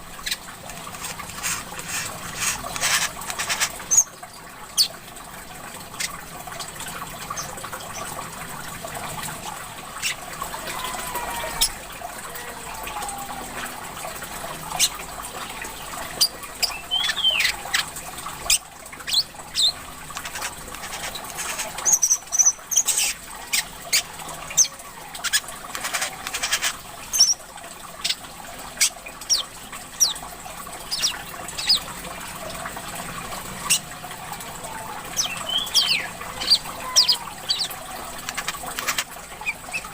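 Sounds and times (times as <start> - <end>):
trickling water: 0.0 - 39.9
songbird chirping and whistling: 35.2 - 37.7.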